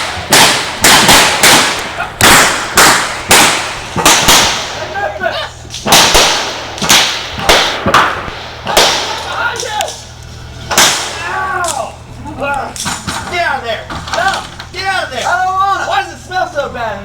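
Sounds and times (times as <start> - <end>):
revolver gunshots: 0.0 - 11.5.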